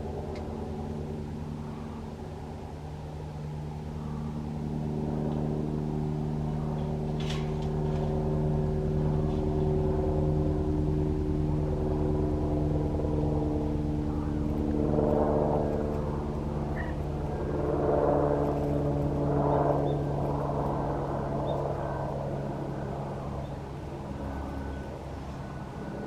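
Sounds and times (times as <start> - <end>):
helicopter engine drone: 0.0 - 26.0
helicopter rotor beating: 0.0 - 26.0.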